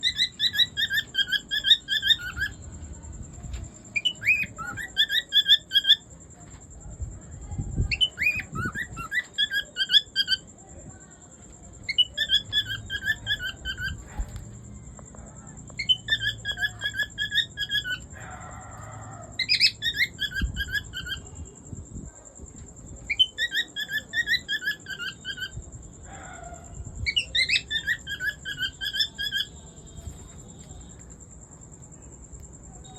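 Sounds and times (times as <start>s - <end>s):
cockatiel chirping call: 0.0s - 2.6s, 4.0s - 6.0s, 7.9s - 10.4s, 11.9s - 14.2s, 15.8s - 18.1s, 19.4s - 21.3s, 23.1s - 25.6s, 27.0s - 29.5s.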